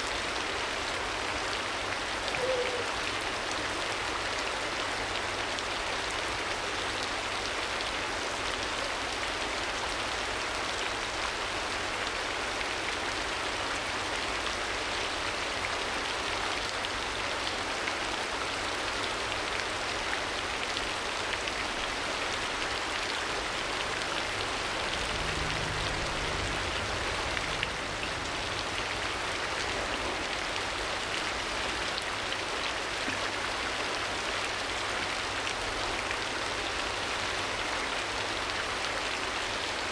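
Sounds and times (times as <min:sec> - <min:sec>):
steady rain falling: 0:00.0 - 0:39.9
low rumble: 0:24.0 - 0:30.4.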